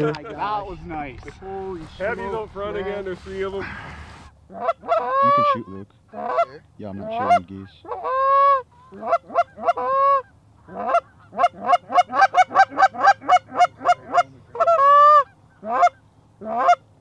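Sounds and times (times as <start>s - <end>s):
goose call honks and clucks: 4.5s - 17.0s.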